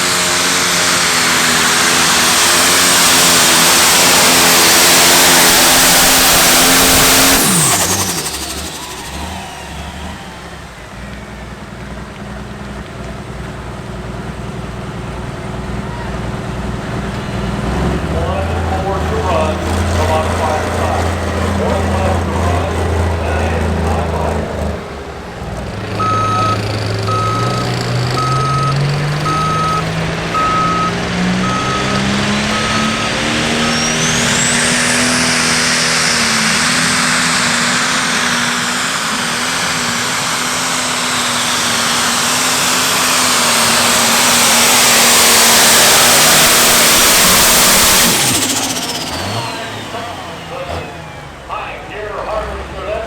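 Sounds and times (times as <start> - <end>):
diesel engine at full throttle: 0.0 - 53.0
turbo whistle: 25.9 - 36.2
electronic beeping: 26.0 - 34.6.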